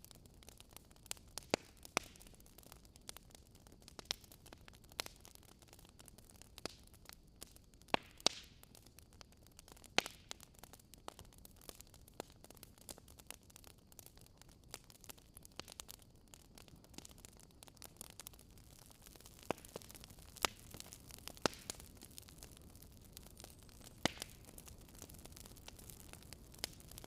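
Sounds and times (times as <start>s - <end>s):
soft steady hiss: 0.0s - 27.0s
wood fire crackling: 0.0s - 27.0s.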